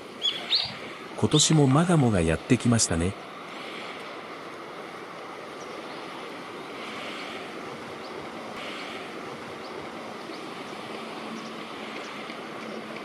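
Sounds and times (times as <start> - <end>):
river rushing: 0.0 - 13.0
faint high bird chirps: 0.2 - 1.5.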